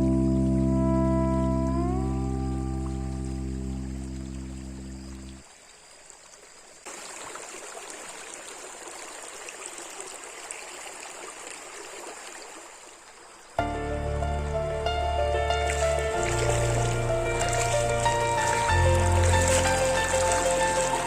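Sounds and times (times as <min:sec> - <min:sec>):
instrumental music: 0:00.0 - 0:04.9, 0:13.6 - 0:21.0
stream water rushing: 0:02.3 - 0:21.0.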